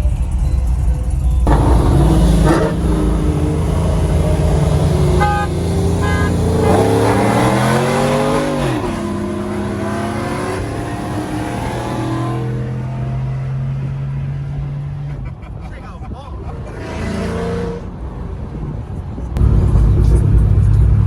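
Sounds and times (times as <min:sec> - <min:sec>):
car engine revving: 0:01.5 - 0:15.4, 0:16.4 - 0:18.5.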